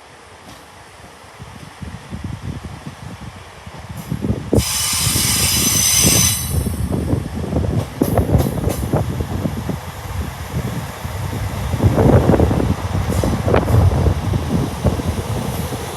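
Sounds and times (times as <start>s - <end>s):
train rumbling past: 0.0s - 15.9s
high squeal: 4.6s - 7.0s.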